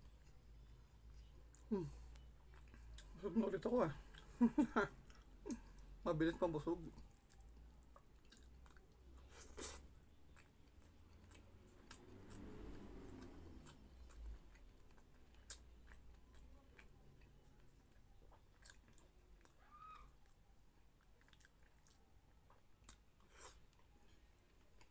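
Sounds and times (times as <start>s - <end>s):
person chewing food: 0.0s - 24.9s.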